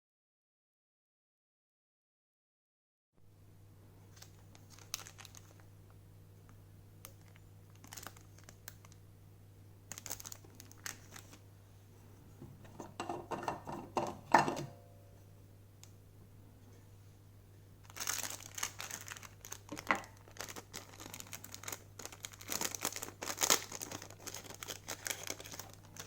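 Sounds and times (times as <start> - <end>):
low electrical hum: 3.2 - 26.0
plastic items crinkling and clicking: 4.1 - 5.7, 7.0 - 9.0, 9.9 - 11.4, 17.8 - 26.0.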